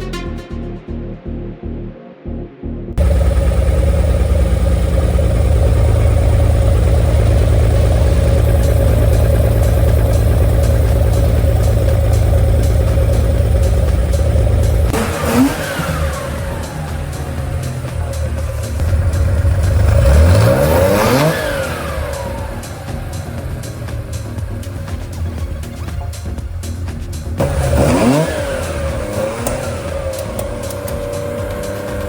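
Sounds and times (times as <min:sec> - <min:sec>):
car engine running at raised revs: 0:03.0 - 0:32.0.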